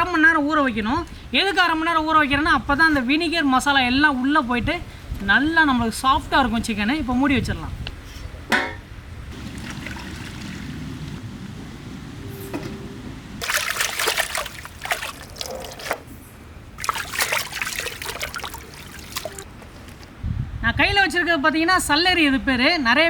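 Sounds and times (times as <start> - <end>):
water trickling and splashing: 9.3 - 11.3, 13.4 - 20.2.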